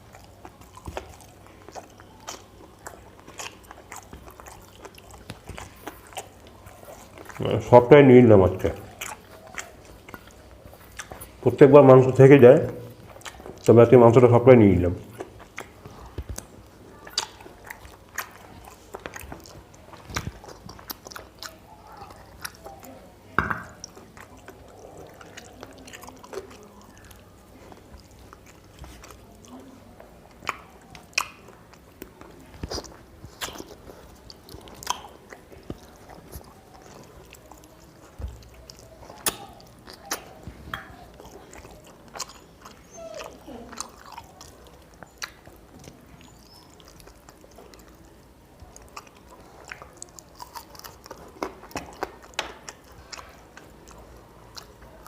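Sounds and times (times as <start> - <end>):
wet mouth clicks and smacks: 0.0 - 7.6, 8.6 - 11.4, 15.0 - 21.6, 30.3 - 55.0
man chewing food: 0.0 - 55.0.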